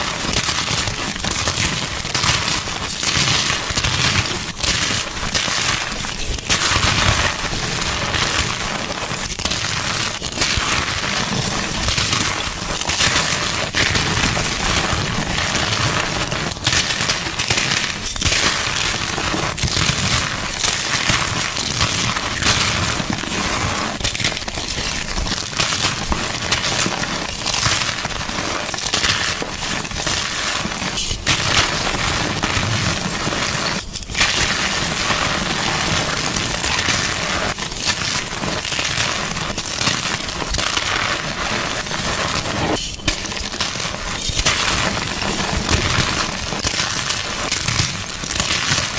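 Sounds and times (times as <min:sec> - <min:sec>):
chalk crunching and crackling: 0:36.2 - 0:48.9.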